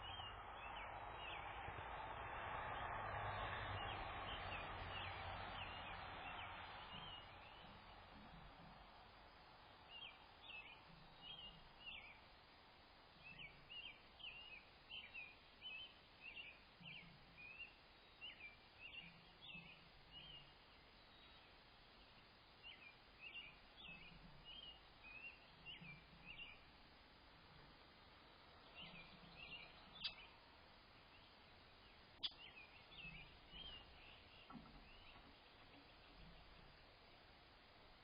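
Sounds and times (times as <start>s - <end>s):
outdoor hiss: 0.0s - 38.0s
faint bird chirps: 9.4s - 12.4s, 13.2s - 26.8s, 28.5s - 37.1s.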